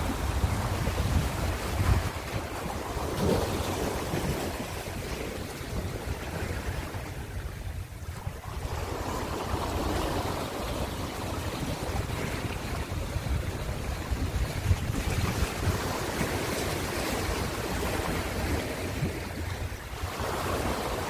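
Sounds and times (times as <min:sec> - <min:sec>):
ocean waves breaking on shore: 0:00.0 - 0:21.0
wind buffeting microphone: 0:00.0 - 0:21.0.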